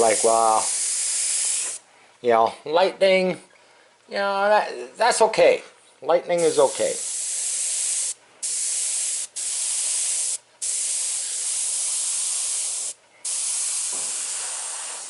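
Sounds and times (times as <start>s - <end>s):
airbrush spraying paint: 0.0s - 1.8s, 6.4s - 15.0s.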